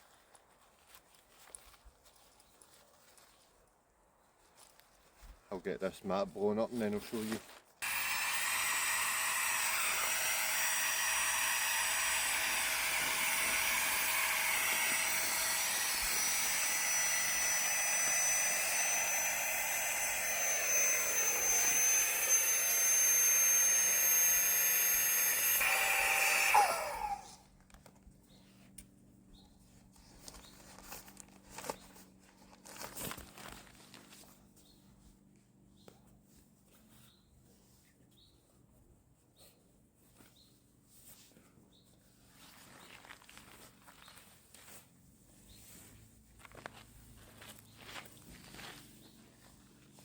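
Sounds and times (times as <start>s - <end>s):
electric air pump whining: 7.8s - 27.4s.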